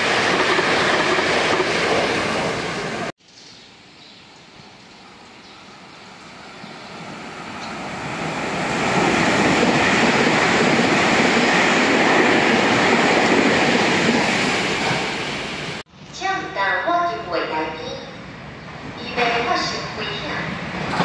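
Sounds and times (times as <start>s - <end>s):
train rushing past: 0.0s - 3.1s, 5.7s - 15.8s.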